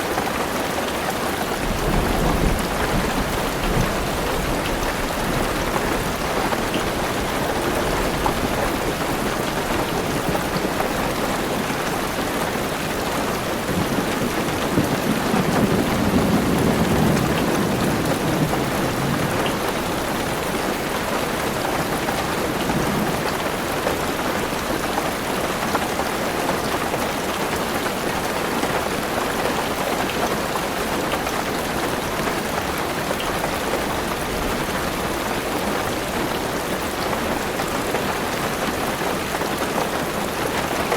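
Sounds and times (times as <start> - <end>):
heavy rain on a car roof: 0.0 - 40.9
thunder rumbling: 1.6 - 10.6, 13.6 - 20.7.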